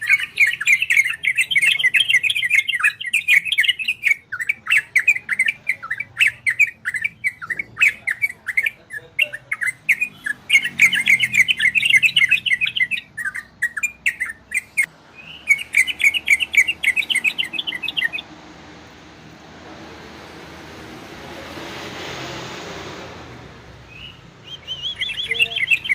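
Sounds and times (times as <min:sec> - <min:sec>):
bird singing chattering notes: 0:00.0 - 0:18.3, 0:23.9 - 0:25.9.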